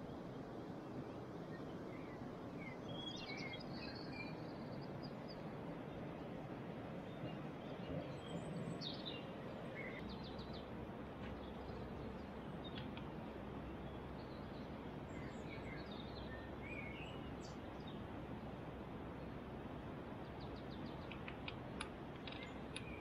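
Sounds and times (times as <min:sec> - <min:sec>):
steady background noise: 0:00.0 - 0:23.0
small birds chirping: 0:07.0 - 0:23.0.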